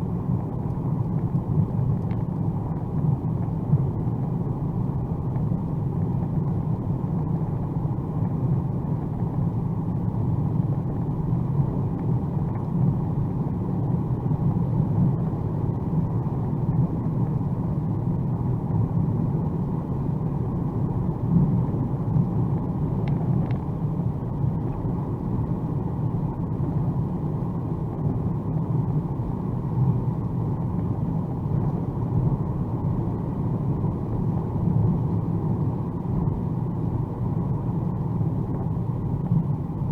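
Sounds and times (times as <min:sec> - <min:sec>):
faint ticks: 0:02.0 - 0:02.3.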